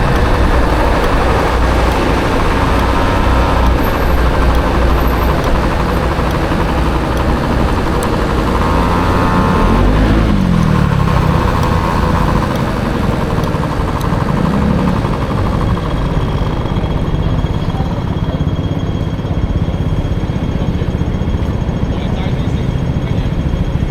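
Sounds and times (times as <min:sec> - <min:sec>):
city traffic: 0:00.0 - 0:23.9
scooter engine running: 0:00.0 - 0:23.9.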